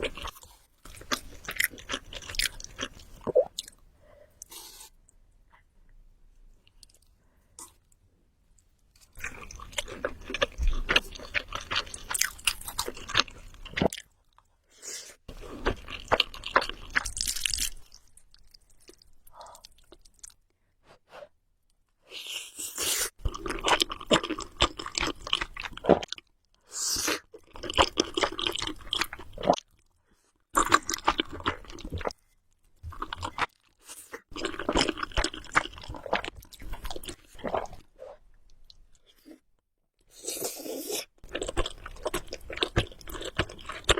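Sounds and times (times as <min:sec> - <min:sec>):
chewing noodles: 0:23.2 - 0:26.2, 0:32.9 - 0:37.9, 0:40.2 - 0:43.9.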